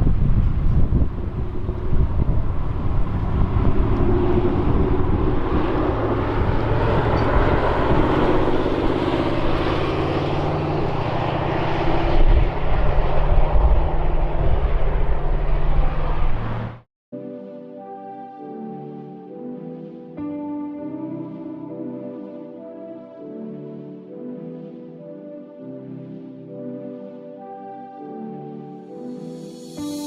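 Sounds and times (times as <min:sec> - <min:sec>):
car engine running loud: 0:00.0 - 0:16.9.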